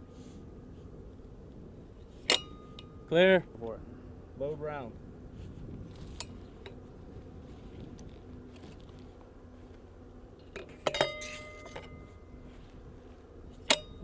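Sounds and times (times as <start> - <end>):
sharp ringing metal clank: 2.2 - 3.2, 10.5 - 12.4, 13.6 - 14.0
metal clinking: 10.5 - 12.1.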